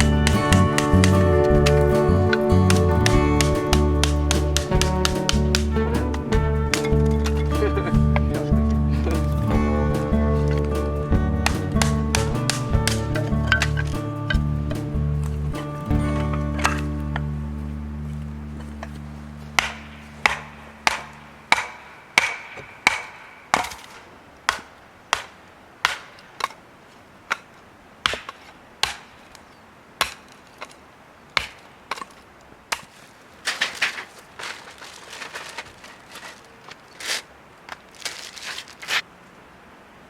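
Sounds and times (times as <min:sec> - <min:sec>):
axe chopping firewood: 0:00.0 - 0:17.3, 0:18.6 - 0:26.6, 0:27.3 - 0:29.3, 0:30.0 - 0:30.8, 0:31.4 - 0:36.4
wood splintering and cracking: 0:00.0 - 0:17.3, 0:31.4 - 0:39.1.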